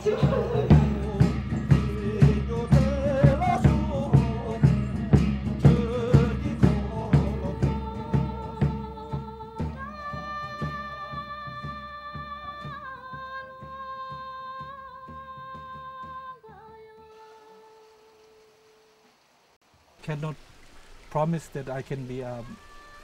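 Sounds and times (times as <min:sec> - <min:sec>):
steady percussive beat: 0:00.0 - 0:12.9
wavering singing voice: 0:00.0 - 0:18.8, 0:22.3 - 0:23.0.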